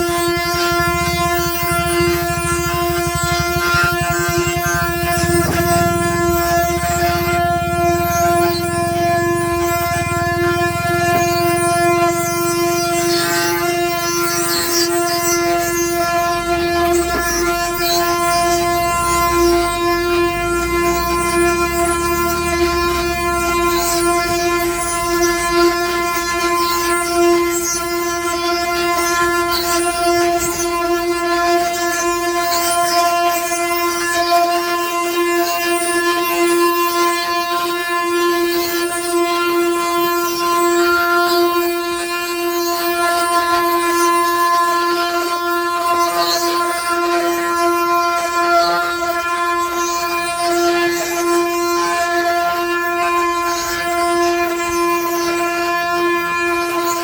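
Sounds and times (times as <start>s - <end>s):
low rumble: 0.0s - 13.9s
wooden axle droning: 0.0s - 34.2s.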